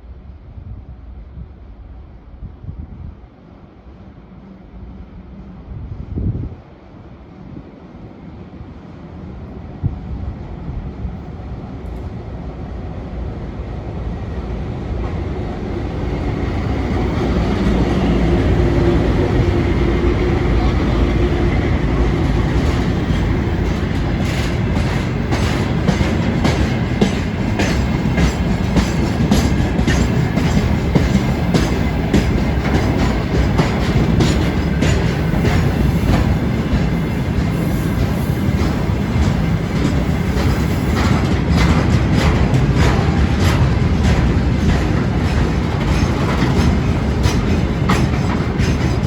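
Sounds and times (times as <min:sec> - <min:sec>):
freight train rumbling past: 0:00.0 - 0:49.0
wheels clicking over rail joints: 0:16.2 - 0:49.0.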